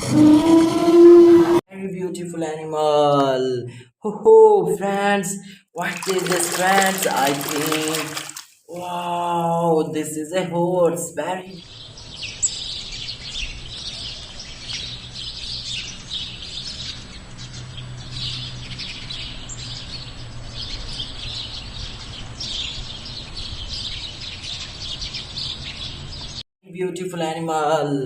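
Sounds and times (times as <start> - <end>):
small birds chirping: 5.5 - 26.4.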